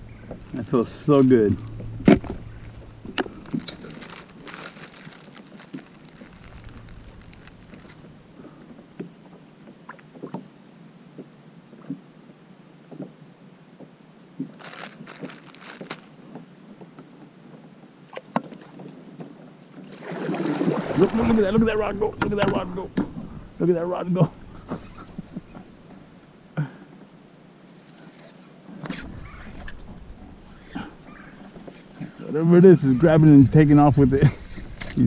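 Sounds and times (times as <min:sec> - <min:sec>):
rustling: 0:00.0 - 0:08.8, 0:14.4 - 0:16.4, 0:20.7 - 0:26.3, 0:27.8 - 0:35.0
faint steady hiss: 0:00.0 - 0:35.0
fishing gear knocks and clicks: 0:00.1 - 0:08.2.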